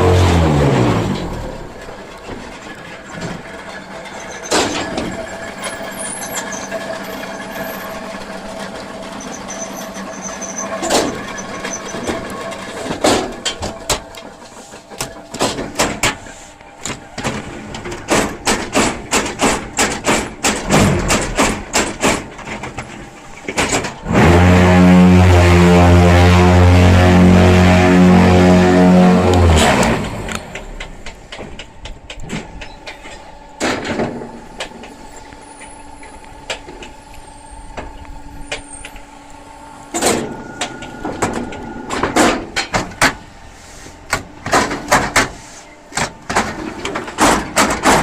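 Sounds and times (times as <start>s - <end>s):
block press machine humming: 0.0s - 48.0s
repeated machine knocks: 15.0s - 16.2s, 16.8s - 22.9s, 23.5s - 25.0s, 44.1s - 45.4s, 46.0s - 48.0s.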